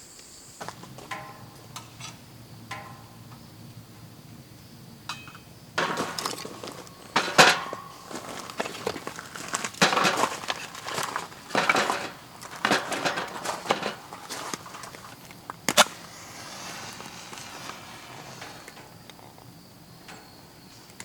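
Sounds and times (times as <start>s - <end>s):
knocks clicks and rustles: 0.6s - 3.4s, 5.1s - 16.1s.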